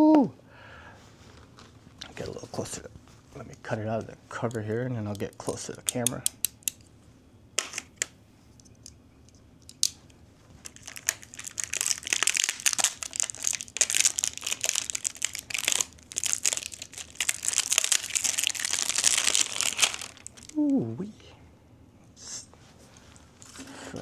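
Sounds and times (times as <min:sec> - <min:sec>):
packaging crinkling and tearing: 0:07.6 - 0:08.1, 0:09.7 - 0:20.8.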